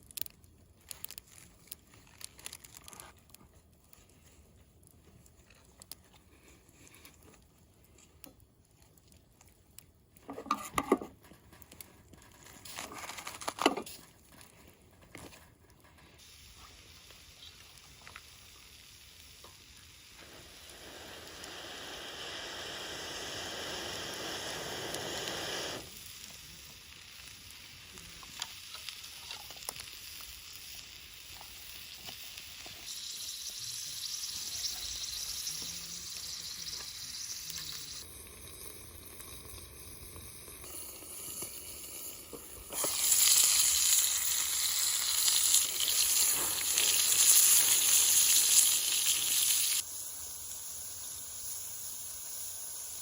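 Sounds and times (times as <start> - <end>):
meat sizzling: 16.2 - 53.0.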